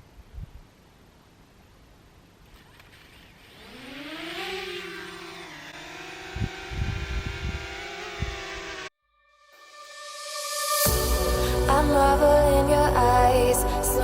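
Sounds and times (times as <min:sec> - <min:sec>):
drone motors whining: 0:02.8 - 0:08.9.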